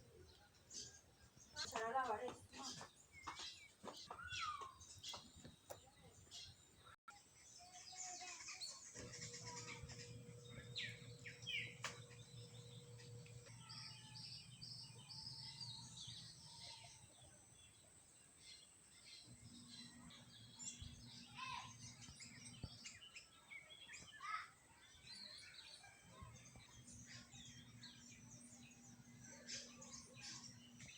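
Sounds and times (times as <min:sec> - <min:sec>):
birds chirping: 0:00.0 - 0:30.9
low steady hum: 0:09.0 - 0:17.9.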